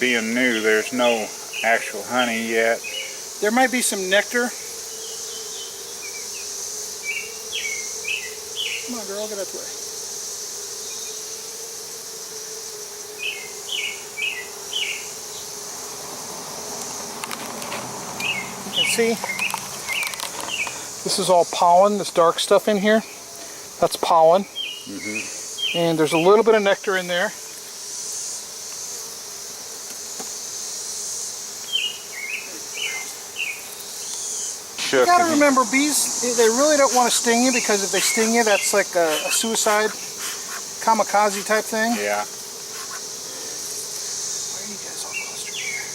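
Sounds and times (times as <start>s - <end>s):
high insect trill: 0.0s - 45.9s
honeybees humming: 0.0s - 45.9s
bird chirping: 4.6s - 8.9s, 13.2s - 15.5s, 18.2s - 20.8s, 24.4s - 26.4s, 31.6s - 40.6s, 45.0s - 45.9s.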